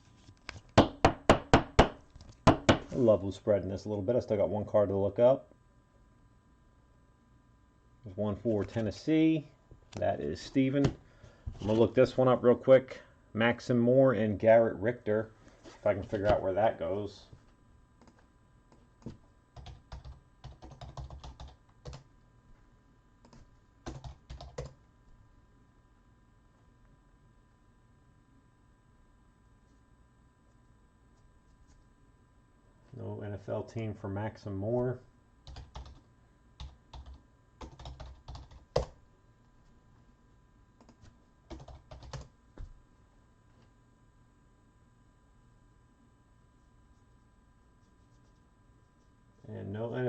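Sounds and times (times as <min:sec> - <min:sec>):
typing on a computer keyboard: 0:19.6 - 0:22.0, 0:23.3 - 0:24.8, 0:35.5 - 0:36.0, 0:36.6 - 0:39.0, 0:40.8 - 0:42.3.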